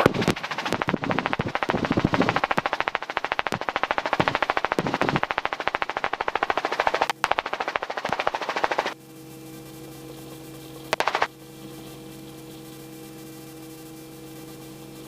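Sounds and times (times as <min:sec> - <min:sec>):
helicopter rotor chop: 0:00.0 - 0:09.0, 0:10.9 - 0:11.3.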